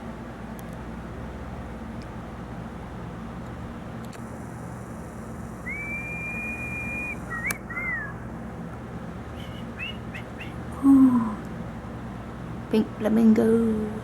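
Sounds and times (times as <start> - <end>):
steady low hum: 0.0 - 14.0
person whistling: 5.6 - 8.2, 9.4 - 11.3
sharp click: 7.4 - 7.7.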